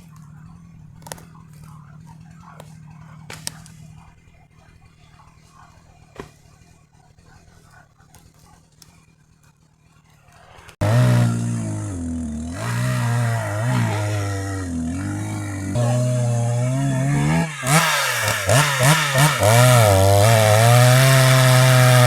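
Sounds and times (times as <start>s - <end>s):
chainsaw engine revving: 0.0s - 4.2s, 10.1s - 22.0s.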